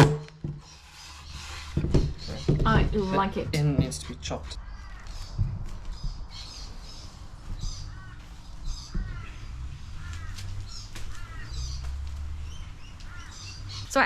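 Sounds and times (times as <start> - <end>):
wild birds calling: 0.3 - 14.0.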